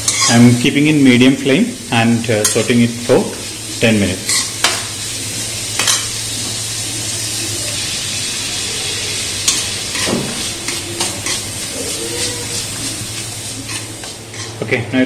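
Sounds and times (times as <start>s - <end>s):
metal spatula scraping and knocking pan: 0.0s - 0.4s
onions sizzling in hot oil: 0.0s - 14.7s.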